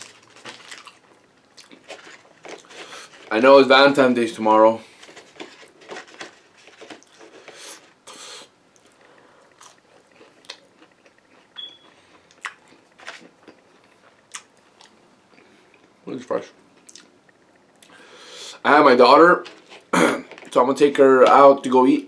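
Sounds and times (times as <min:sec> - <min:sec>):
chewing fries: 0:00.0 - 0:03.4, 0:04.9 - 0:16.0, 0:16.8 - 0:18.2.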